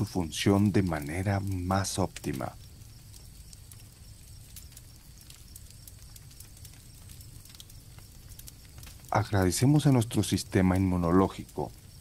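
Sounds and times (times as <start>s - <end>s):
campfire crackling: 0.0s - 12.0s
crickets chirping: 0.0s - 12.0s.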